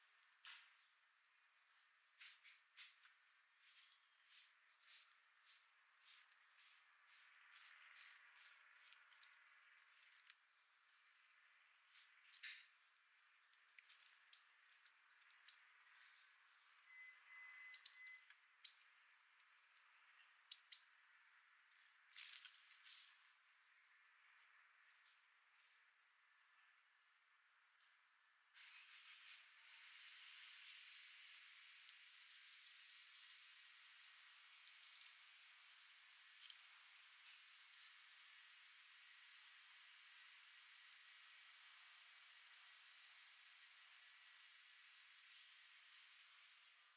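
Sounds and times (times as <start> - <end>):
faint steady hiss: 0.0 - 46.9
birds chirping and twittering: 2.2 - 26.8, 27.4 - 46.9.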